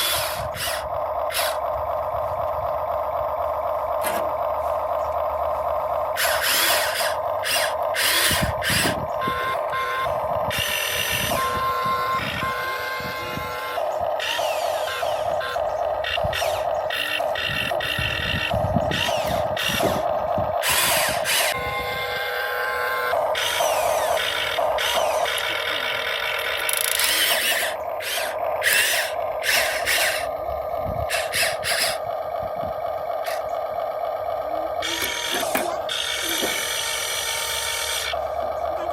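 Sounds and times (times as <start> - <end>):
toy excavator motors whining: 0.0 - 38.9.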